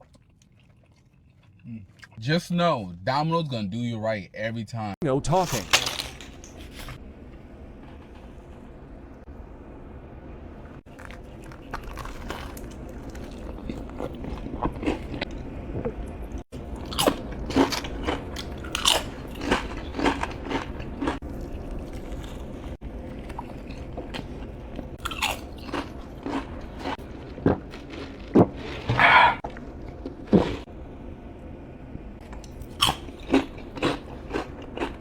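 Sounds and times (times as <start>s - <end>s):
person chewing crunchy food: 0.0s - 2.2s, 10.8s - 30.7s, 32.2s - 35.0s.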